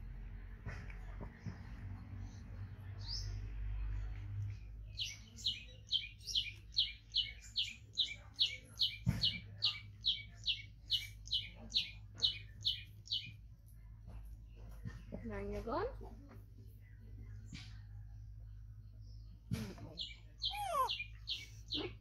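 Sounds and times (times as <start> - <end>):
bird chirping: 4.9 - 13.4, 18.8 - 22.0.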